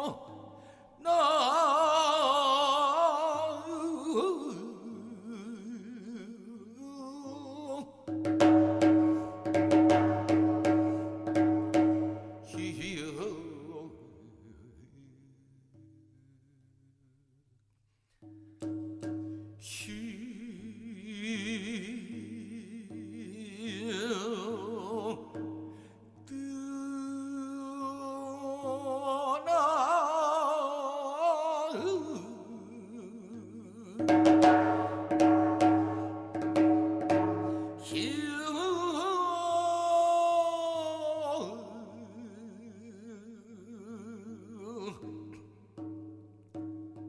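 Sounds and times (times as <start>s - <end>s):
person singing with vibrato: 0.0s - 17.2s, 19.5s - 45.8s
sharp percussive strokes: 8.1s - 12.9s, 34.0s - 38.4s.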